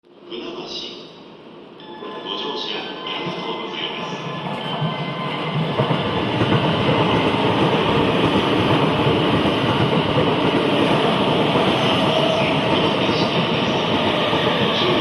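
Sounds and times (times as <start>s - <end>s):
electric train running: 3.2s - 15.0s.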